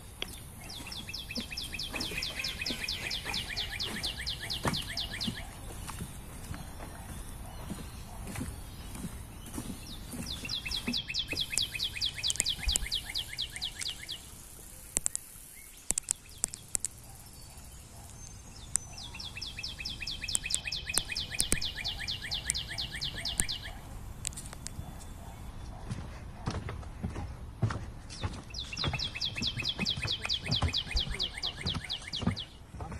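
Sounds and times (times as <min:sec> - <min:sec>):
small bird trilling: 0:00.6 - 0:05.6, 0:10.2 - 0:14.3
sharp clicks: 0:10.6 - 0:17.3, 0:18.0 - 0:25.2.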